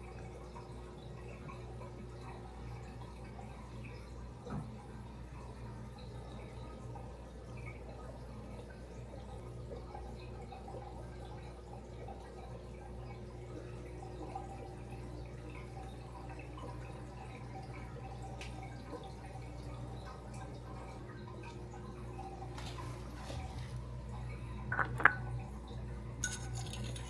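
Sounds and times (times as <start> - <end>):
low hum of pumps: 0.0 - 27.0
water trickling and dripping: 0.0 - 27.0.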